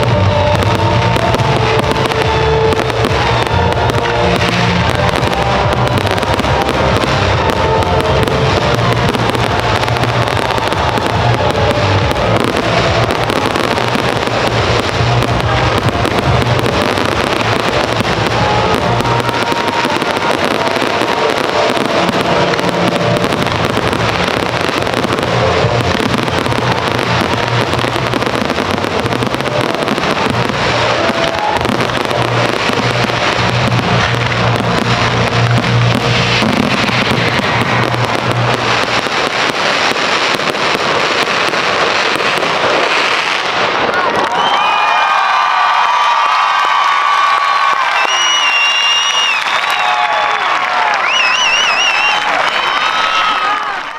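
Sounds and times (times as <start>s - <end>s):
music with deep bass: 0.0s - 40.7s
fireworks bursting and crackling: 0.0s - 53.9s.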